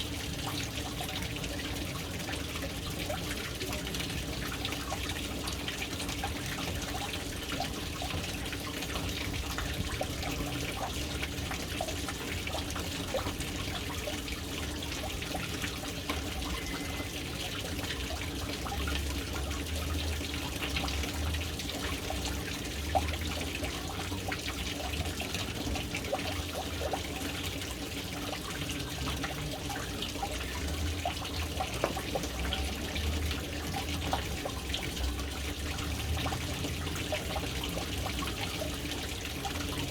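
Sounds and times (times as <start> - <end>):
water dripping: 0.0 - 39.9
water pouring into tank: 0.0 - 39.9.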